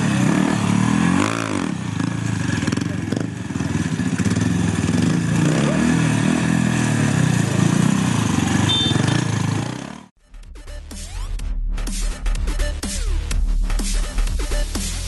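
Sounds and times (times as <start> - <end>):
pit-bike engine revving: 0.0 - 10.1.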